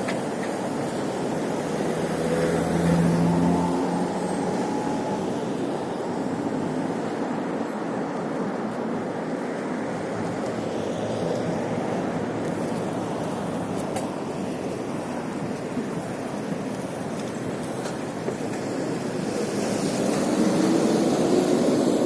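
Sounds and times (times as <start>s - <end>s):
city traffic: 0.0s - 22.0s
road noise: 0.0s - 22.0s
engine hum: 1.4s - 6.7s.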